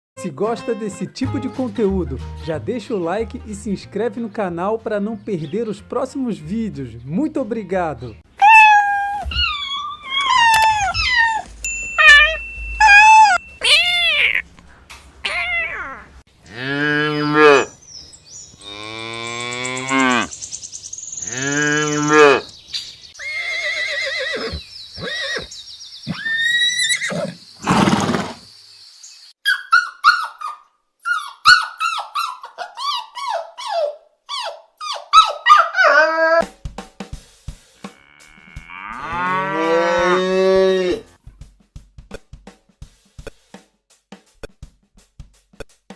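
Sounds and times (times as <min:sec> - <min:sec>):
high wavering animal cries: 0:08.4 - 0:14.5, 0:15.2 - 0:17.7, 0:23.2 - 0:25.5, 0:26.1 - 0:27.4, 0:29.5 - 0:36.4.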